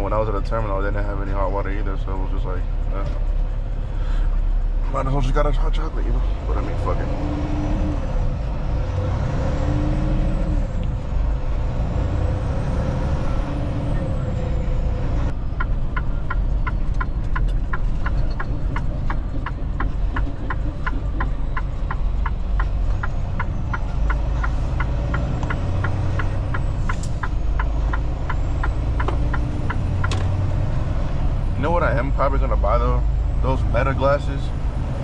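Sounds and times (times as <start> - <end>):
truck engine and road rumble: 0.0 - 35.0
quick ticking: 15.6 - 29.8.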